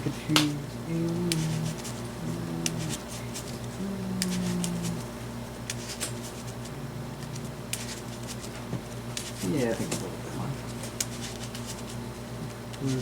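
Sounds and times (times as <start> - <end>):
low voice murmur: 0.0 - 3.1, 3.7 - 5.2
low room hum: 0.0 - 13.0
cards clicking and tapping: 0.3 - 1.8.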